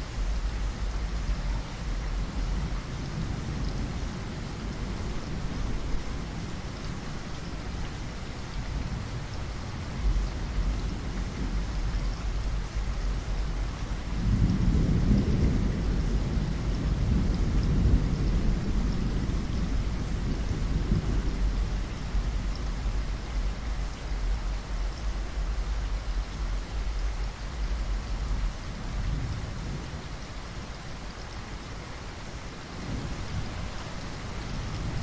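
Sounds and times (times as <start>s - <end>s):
steady rain falling: 0.0s - 35.0s
thunder rumbling: 8.7s - 31.6s, 32.6s - 35.0s.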